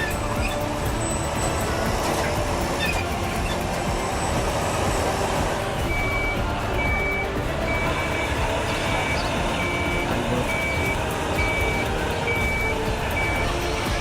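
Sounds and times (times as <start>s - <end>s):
engine rumble: 0.0s - 14.0s
reversing alarm beeping: 0.0s - 14.0s.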